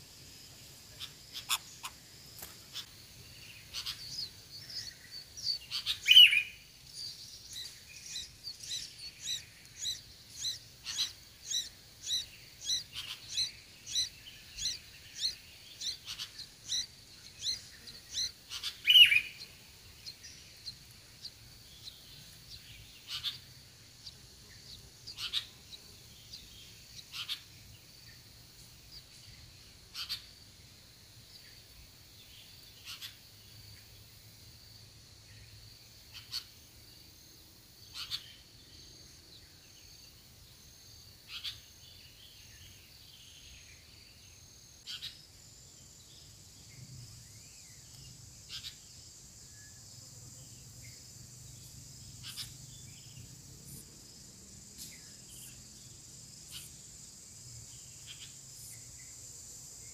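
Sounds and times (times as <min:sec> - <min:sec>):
louder lower bird calls: 0:00.9 - 0:02.0, 0:03.6 - 0:06.6, 0:07.5 - 0:25.6, 0:27.0 - 0:27.5, 0:52.2 - 0:52.6.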